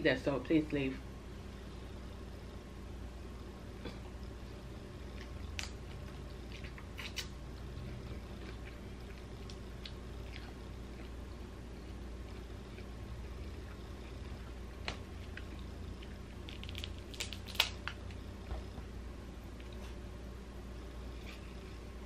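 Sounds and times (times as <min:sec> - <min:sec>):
low hum: 0:00.0 - 0:22.0
person chewing food: 0:05.1 - 0:18.2.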